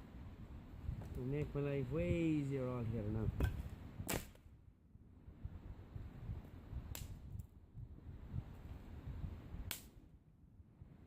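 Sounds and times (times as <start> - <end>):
axe striking wood: 3.4 - 4.4.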